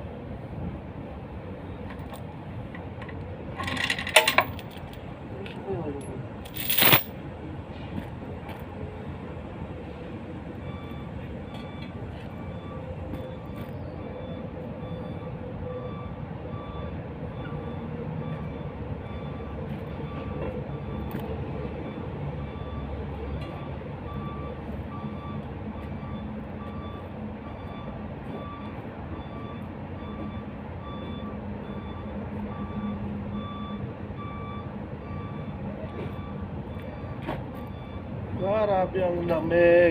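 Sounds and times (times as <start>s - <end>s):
engine rumbling: 0.0s - 8.4s
reversing alarm beeping: 21.8s - 38.5s.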